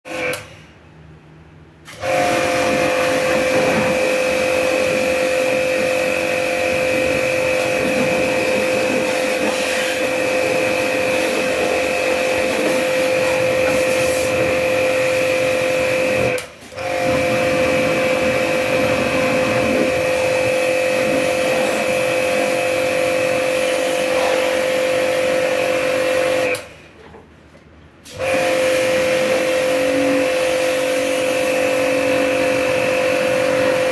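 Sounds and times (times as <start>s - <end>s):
jet pump whining: 1.9s - 26.7s, 28.1s - 33.9s
hissing water spray: 2.0s - 26.4s.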